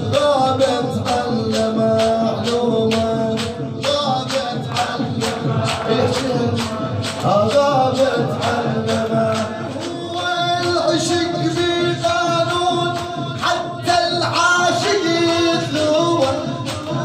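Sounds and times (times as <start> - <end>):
man chanting melodically: 0.0 - 17.0
steady percussive beat: 0.0 - 17.0.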